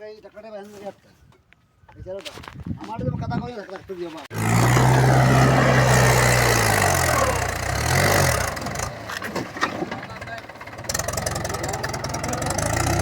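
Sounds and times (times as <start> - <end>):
tractor diesel engine running hard: 4.3 - 13.0.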